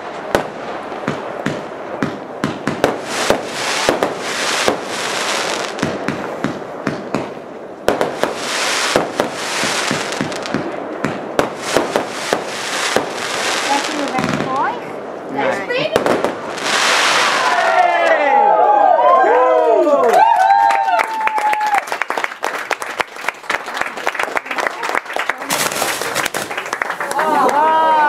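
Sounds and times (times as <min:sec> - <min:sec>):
firework launch and burst bangs: 0:00.0 - 0:15.0, 0:15.8 - 0:17.7
fireworks hissing crackle: 0:00.0 - 0:17.8, 0:25.4 - 0:27.6.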